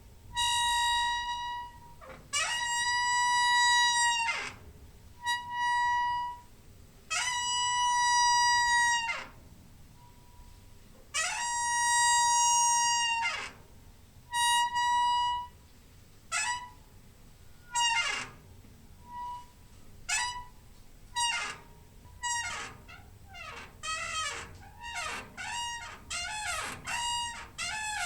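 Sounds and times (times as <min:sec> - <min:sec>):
door hinge squeaking: 0:00.4 - 0:04.6, 0:11.2 - 0:13.6, 0:14.3 - 0:15.6, 0:16.3 - 0:16.8, 0:17.5 - 0:28.0.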